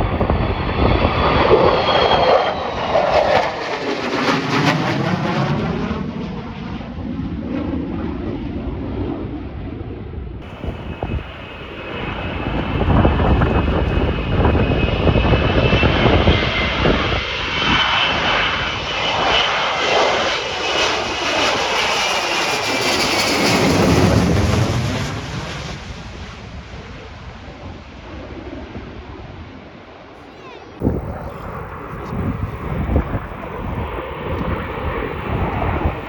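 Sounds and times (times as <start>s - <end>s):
aircraft engine roar: 0.0s - 36.0s
high steady whine: 10.4s - 17.2s, 30.8s - 36.0s.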